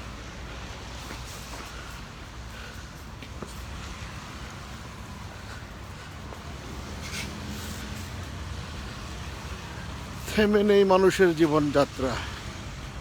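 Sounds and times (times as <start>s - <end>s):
hum of traffic: 0.0s - 13.0s.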